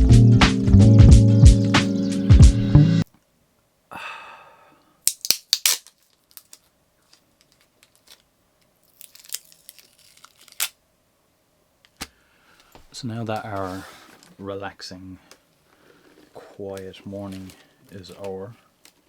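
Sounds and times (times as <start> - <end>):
crinkling: 5.0 - 10.8, 11.8 - 14.6, 15.3 - 19.0.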